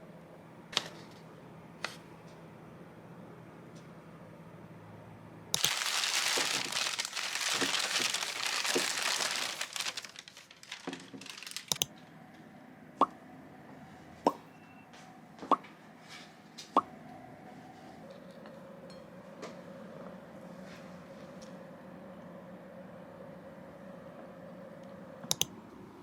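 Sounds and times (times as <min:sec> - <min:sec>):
crinkling tearing noise: 0:05.6 - 0:11.9.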